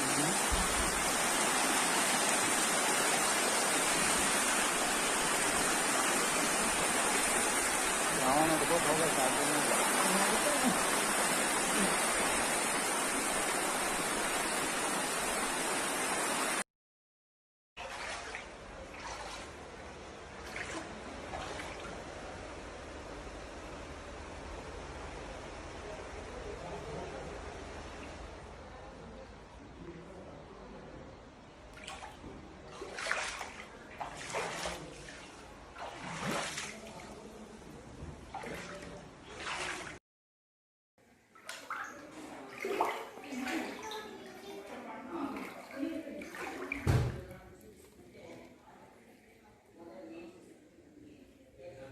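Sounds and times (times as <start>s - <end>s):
faint water flow: 0.0s - 16.6s, 17.8s - 40.0s, 41.0s - 51.9s
floodwater rushing: 0.0s - 16.6s, 17.8s - 23.5s, 31.7s - 37.6s, 38.2s - 40.0s, 41.4s - 47.4s.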